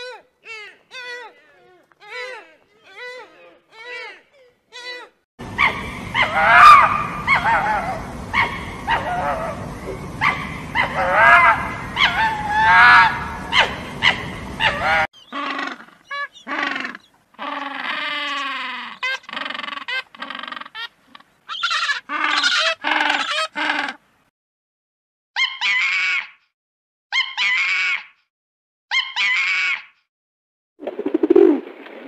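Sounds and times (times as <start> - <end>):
fox whining and yelping: 5.6 - 9.6, 10.2 - 20.6, 25.4 - 26.2, 27.1 - 28.0, 28.9 - 29.8.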